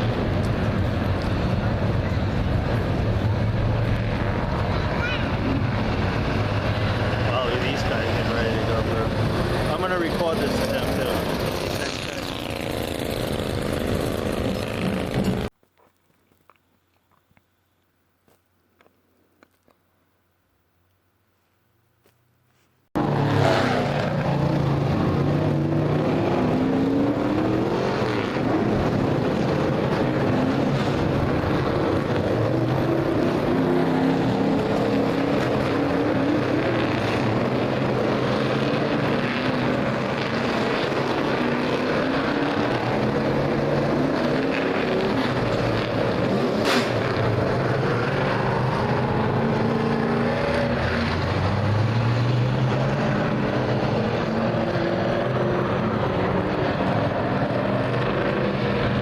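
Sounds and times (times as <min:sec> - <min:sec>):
race car engines passing: 0:00.0 - 0:15.5, 0:23.0 - 0:59.0.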